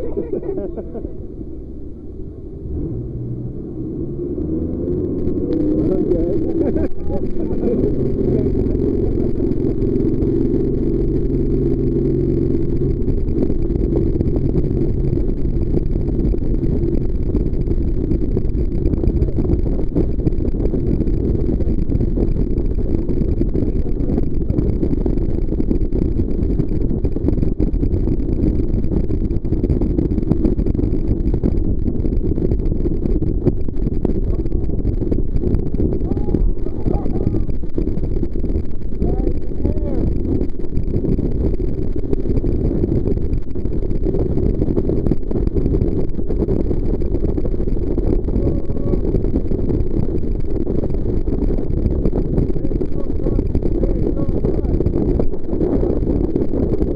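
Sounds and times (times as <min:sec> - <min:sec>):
boat engine: 0:00.0 - 0:28.2
wind: 0:00.0 - 0:49.5
jet boat engine rumble: 0:00.0 - 0:56.9.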